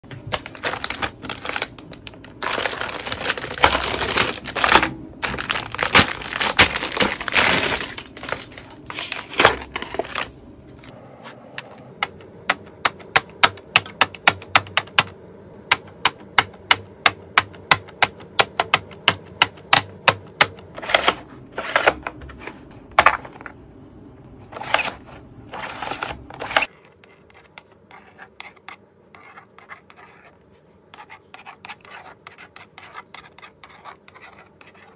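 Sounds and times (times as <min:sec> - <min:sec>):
magnetic pen scratching board: 0:25.5 - 0:34.9.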